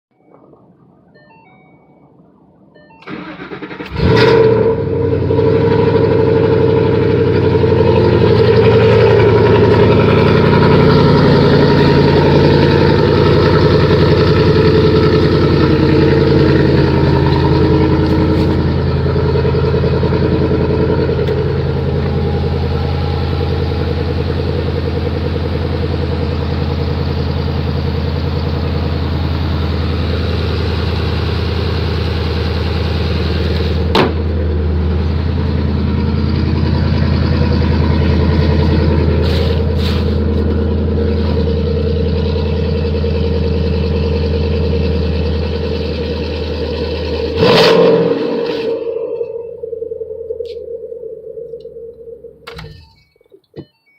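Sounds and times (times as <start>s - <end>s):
car engine fast idle: 3.0s - 4.4s, 5.6s - 47.4s.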